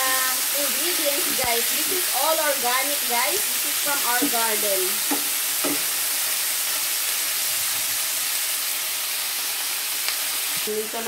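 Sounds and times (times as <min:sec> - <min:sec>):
peppers sizzling in hot oil: 0:00.0 - 0:11.0
wooden spatula knocks: 0:04.2 - 0:04.4, 0:05.1 - 0:05.9.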